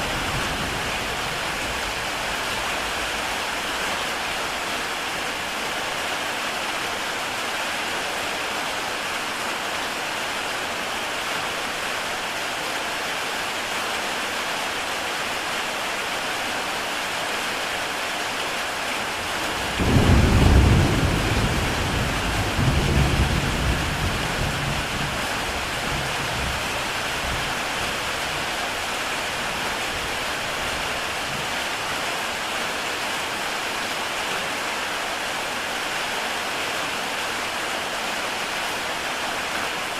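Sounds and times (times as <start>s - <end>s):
rumble of thunder: 0.0s - 3.4s, 19.6s - 26.6s
heavy rain on a tile roof: 0.0s - 39.9s.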